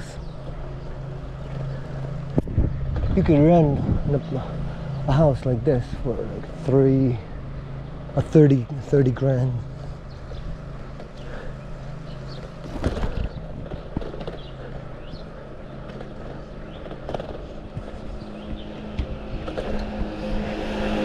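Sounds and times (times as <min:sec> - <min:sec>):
bike rattling and knocking: 0:00.0 - 0:21.0
bike tyres rolling on road: 0:00.0 - 0:21.0
traffic engine hum: 0:00.0 - 0:21.0.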